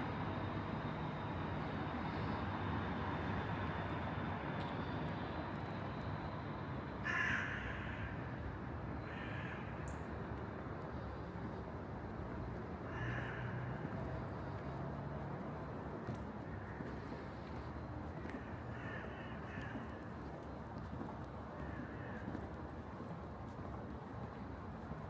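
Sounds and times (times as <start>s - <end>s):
low hum of city background: 0.0s - 25.0s
crow cawing: 7.0s - 8.4s, 9.0s - 9.9s, 12.8s - 13.9s, 18.2s - 20.1s, 21.6s - 22.3s.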